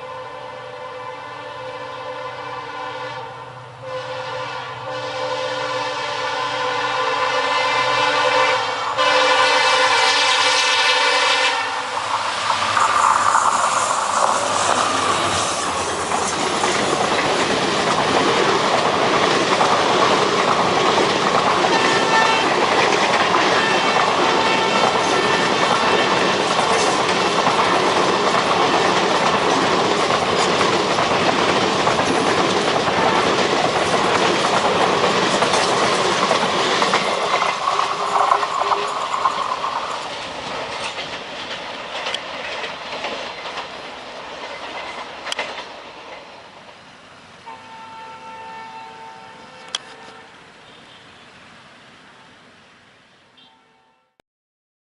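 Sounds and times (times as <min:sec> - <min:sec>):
train wheels clattering over rail joints: 0:11.9 - 0:46.9.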